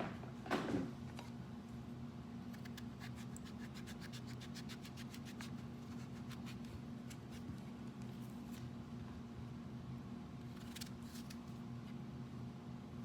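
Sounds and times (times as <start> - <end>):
pumpkin skin being peeled: 2.5 - 8.7, 10.5 - 11.6.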